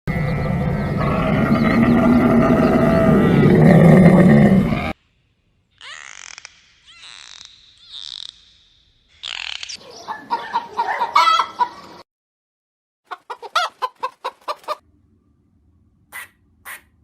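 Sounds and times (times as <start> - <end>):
chickens clucking: 9.8 - 12.0, 13.1 - 14.8.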